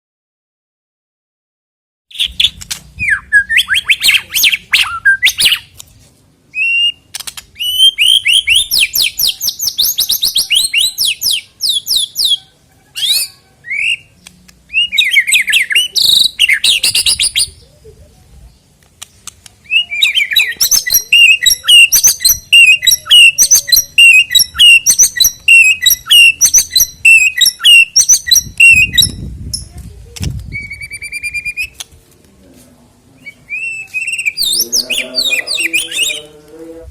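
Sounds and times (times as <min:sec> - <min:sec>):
songbird singing: 0:02.1 - 0:05.7, 0:06.4 - 0:31.9, 0:33.0 - 0:36.9.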